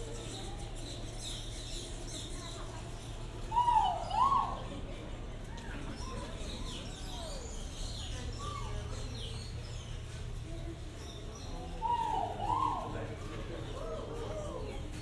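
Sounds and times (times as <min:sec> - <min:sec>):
arching whistled bird calls: 0:11.4 - 0:13.1.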